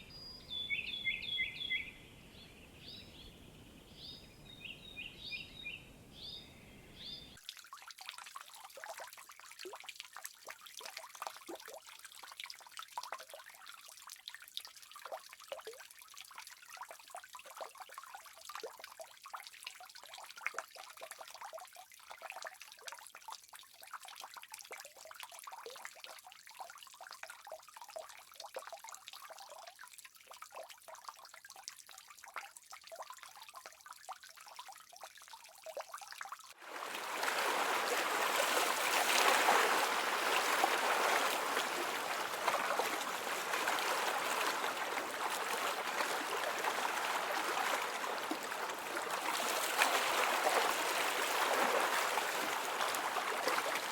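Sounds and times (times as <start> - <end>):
water trickling: 35.4 - 53.9
rush of flowing water: 36.6 - 53.9.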